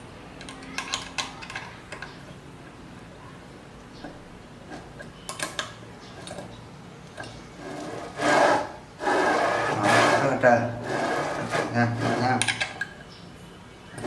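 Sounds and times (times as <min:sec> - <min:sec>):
metal parts clicking: 0:00.4 - 0:02.2, 0:05.0 - 0:06.5, 0:11.0 - 0:13.0
rasping scraping strokes: 0:07.6 - 0:12.4.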